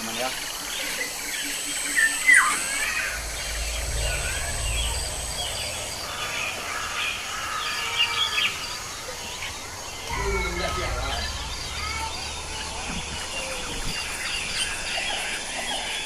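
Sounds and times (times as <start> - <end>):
small birds chirping: 0.0 - 16.0
low rumble: 2.4 - 7.8, 8.6 - 15.6.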